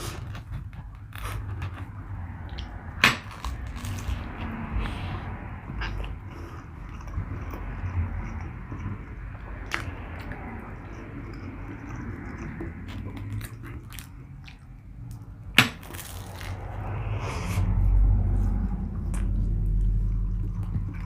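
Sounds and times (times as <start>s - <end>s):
person chewing food: 0.0s - 17.0s, 18.4s - 21.0s.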